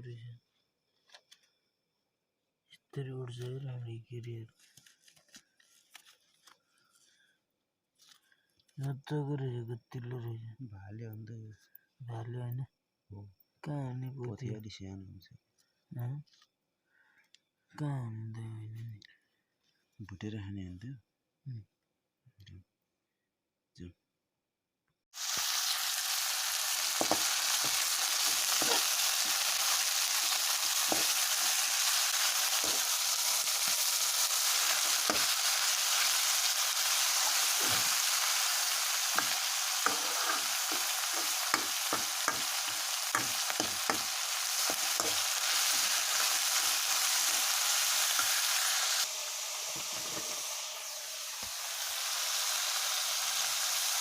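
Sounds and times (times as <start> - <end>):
meat sizzling in hot oil: 25.2 - 54.0
spatula knocking and scraping pan: 27.0 - 29.3, 39.1 - 45.3.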